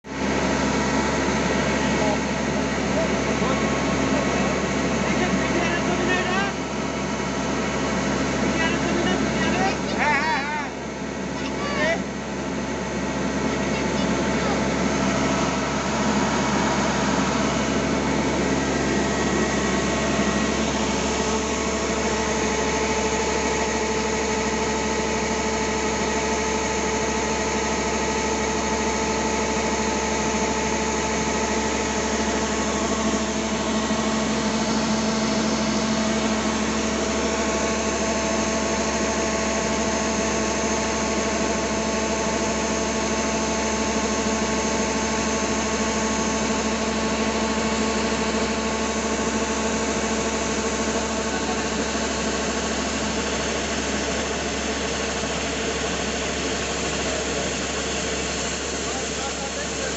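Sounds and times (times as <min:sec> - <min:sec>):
combine harvester engine running: 0:00.0 - 0:59.9
steady whining tones: 0:00.1 - 0:59.9.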